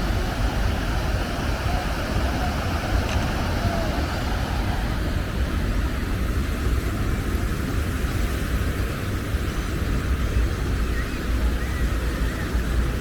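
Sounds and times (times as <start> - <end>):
breaking surf: 0.0 - 6.8
wind buffeting microphone: 0.0 - 13.0.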